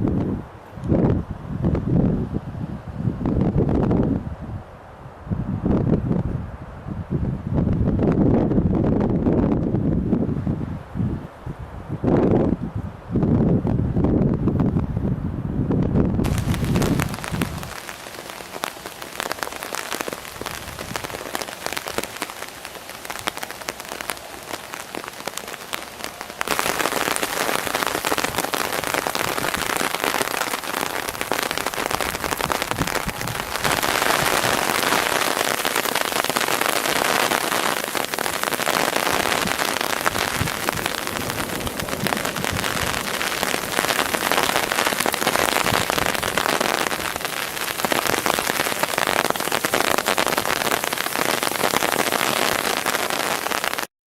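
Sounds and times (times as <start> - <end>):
heavy rain falling: 16.2 - 53.9.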